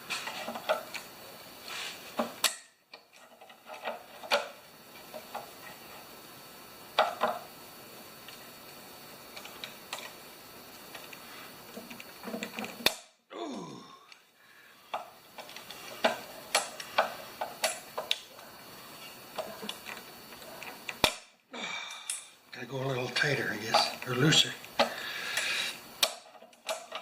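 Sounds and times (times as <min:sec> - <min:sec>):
sharp metal snap: 0:02.4 - 0:02.8, 0:12.8 - 0:13.2
hand tools clicking on metal: 0:14.9 - 0:18.3, 0:23.6 - 0:27.0.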